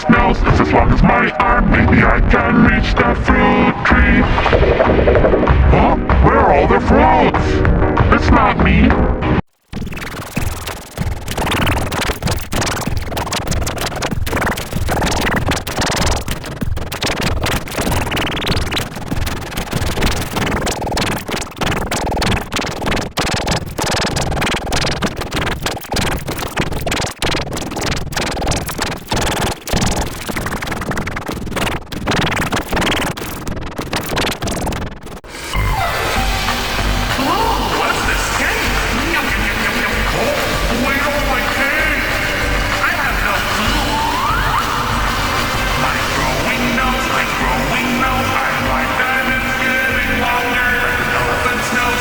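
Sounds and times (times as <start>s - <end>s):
distorted cartoon audio: 0.0s - 52.0s
sharp crackling clicks: 9.6s - 35.3s.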